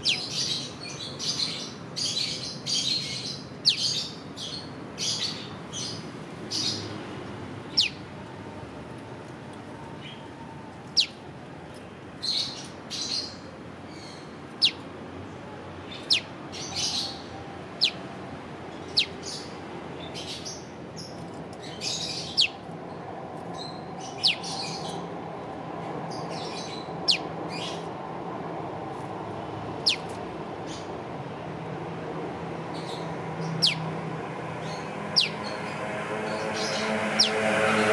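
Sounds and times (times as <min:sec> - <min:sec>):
scratchy bird chattering: 0:29.8 - 0:30.1, 0:33.6 - 0:33.8.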